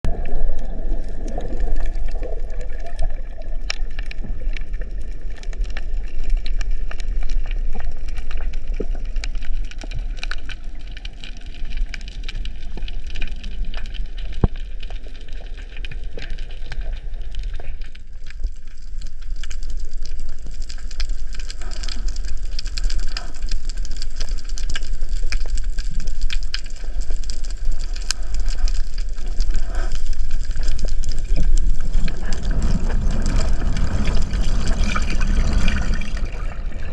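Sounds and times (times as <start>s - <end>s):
muffled underwater rumble: 0.0s - 36.9s
sharp clicks and crackles: 0.1s - 36.9s.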